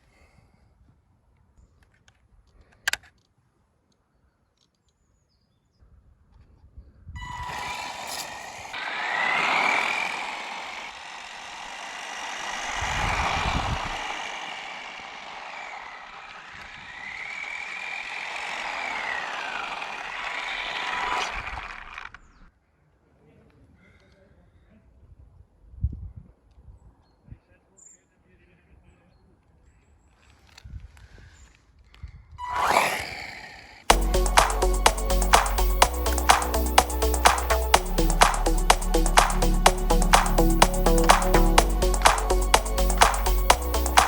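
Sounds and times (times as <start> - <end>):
rc truck motor whine: 7.2 - 22.2, 32.4 - 44.0.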